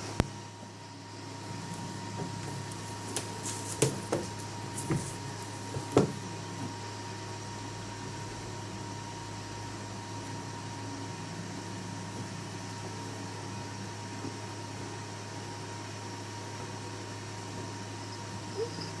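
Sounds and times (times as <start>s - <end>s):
steady electrical hum: 0.0s - 19.0s
cats play-fighting thumps: 2.2s - 6.3s.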